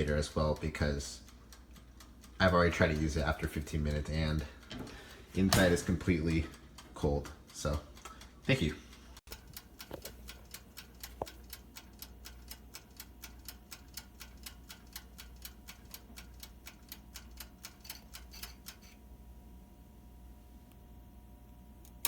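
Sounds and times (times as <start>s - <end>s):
wind-up timer ticking: 0.0s - 19.2s
loud timer click: 9.3s - 19.0s.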